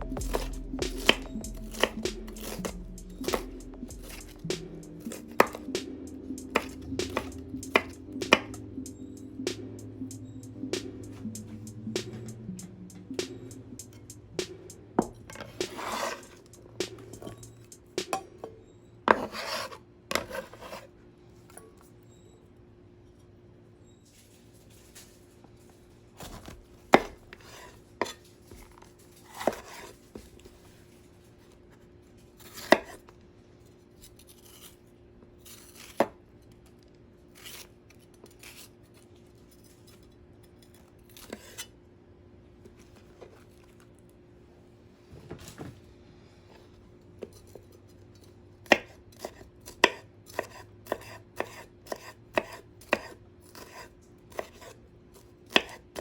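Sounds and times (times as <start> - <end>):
knife chopping on cutting board: 0.1 - 5.7, 6.5 - 8.6, 15.0 - 17.4, 19.1 - 20.9, 26.4 - 28.2, 29.3 - 29.9, 32.4 - 33.0, 48.6 - 54.8, 55.5 - 56.0.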